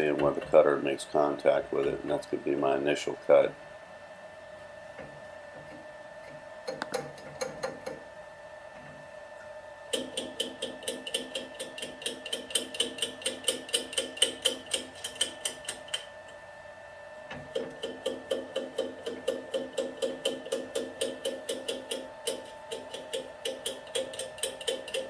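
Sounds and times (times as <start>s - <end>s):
faint steady hum: 0.0s - 25.0s
lathe cutter ticking on wood: 6.6s - 8.0s, 9.9s - 16.1s, 17.5s - 25.0s.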